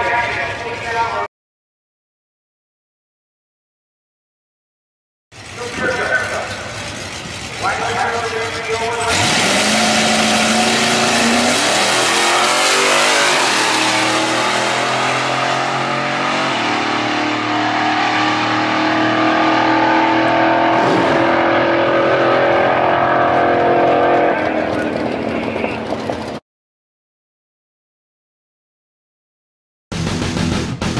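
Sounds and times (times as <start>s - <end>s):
trucks racing at full throttle: 5.4s - 26.4s.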